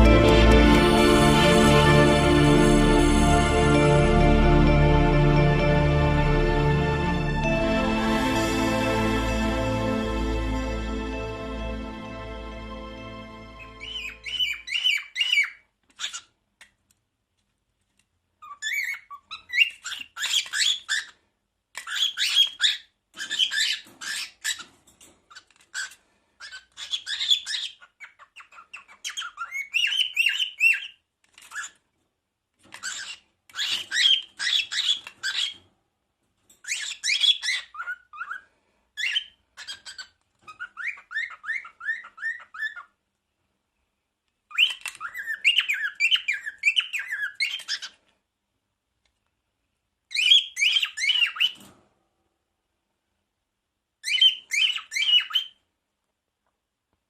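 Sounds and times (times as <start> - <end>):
cockatiel chirping and whistling: 13.8 - 16.3, 18.4 - 21.2, 21.8 - 24.7, 25.7 - 31.8, 32.8 - 35.6, 36.6 - 38.4, 39.0 - 42.9, 44.5 - 48.0, 50.1 - 51.7, 54.0 - 55.6.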